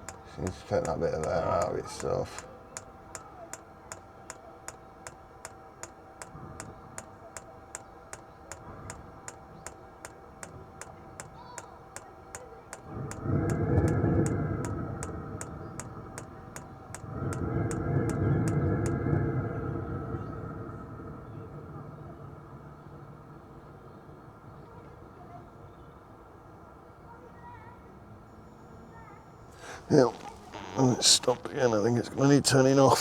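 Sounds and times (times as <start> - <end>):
fuel pump ticking: 0.0 - 19.0
rushing hum: 0.0 - 19.5.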